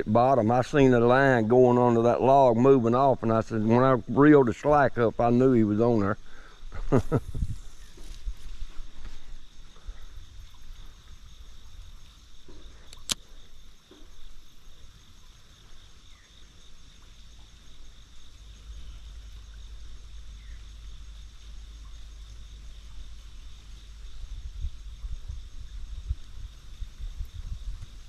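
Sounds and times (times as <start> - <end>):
insects chirping: 0.0 - 28.0
sharp click: 12.9 - 13.3.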